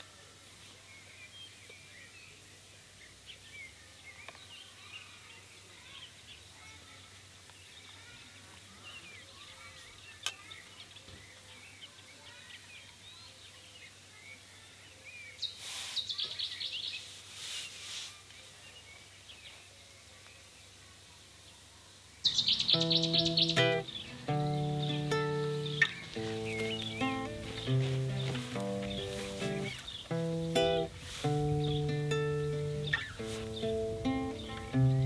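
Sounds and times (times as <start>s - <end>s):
rustle: 0.0s - 35.0s
small birds chirping: 0.0s - 35.0s
high chattering notes: 22.3s - 35.0s.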